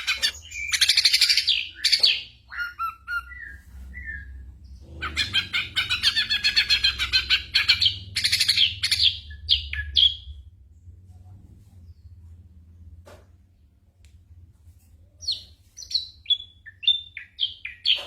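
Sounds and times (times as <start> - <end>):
bird chattering song: 0.0 - 10.4, 15.1 - 18.0.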